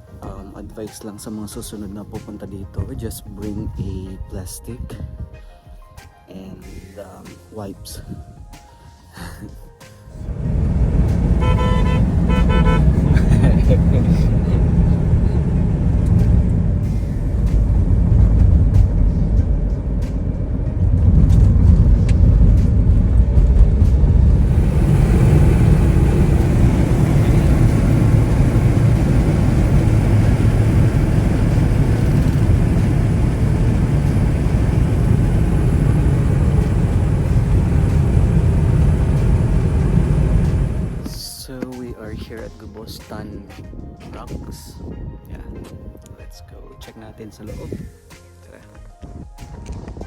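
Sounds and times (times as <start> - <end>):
car engine and road rumble: 10.1 - 41.2.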